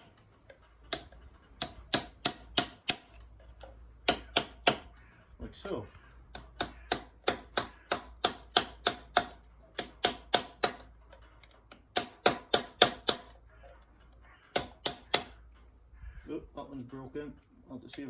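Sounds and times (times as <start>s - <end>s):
hammer tapping screwdriver on bolt: 0.0s - 4.9s, 6.3s - 13.8s.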